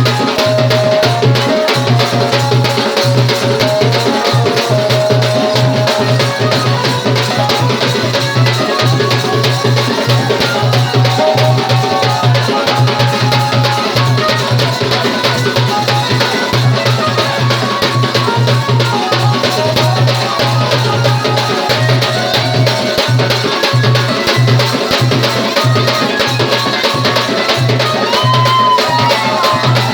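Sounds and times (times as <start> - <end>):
held pitched notes: 0.0 - 15.0
fast dense drumming: 0.0 - 29.9.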